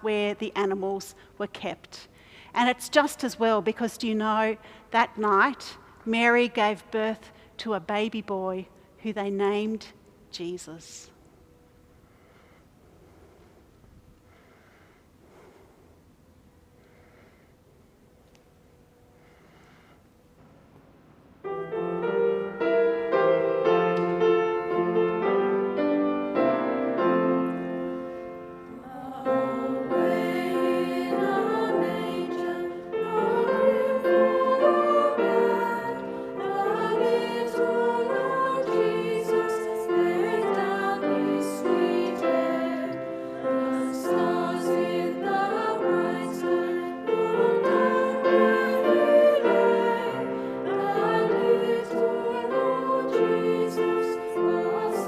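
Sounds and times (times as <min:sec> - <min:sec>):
piano: 0:10.9 - 0:55.0
choir singing a carol: 0:21.5 - 0:55.0.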